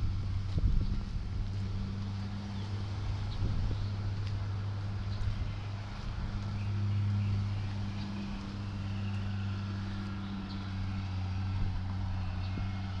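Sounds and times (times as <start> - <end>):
garbage truck engine drone: 0.0 - 13.0.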